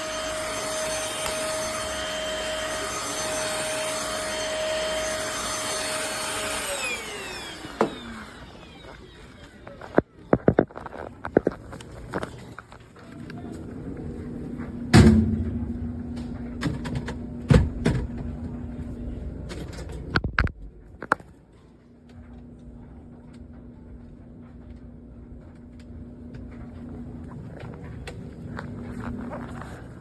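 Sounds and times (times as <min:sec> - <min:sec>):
vacuum motor humming: 0:00.0 - 0:12.3, 0:26.4 - 0:30.0.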